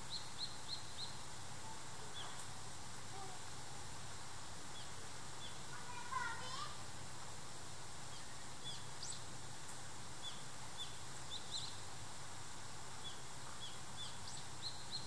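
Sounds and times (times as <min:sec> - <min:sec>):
small bird chirping: 0:00.0 - 0:02.5, 0:04.0 - 0:06.3, 0:08.0 - 0:09.3, 0:10.2 - 0:12.0, 0:12.9 - 0:15.0
steady background hiss: 0:00.0 - 0:15.0.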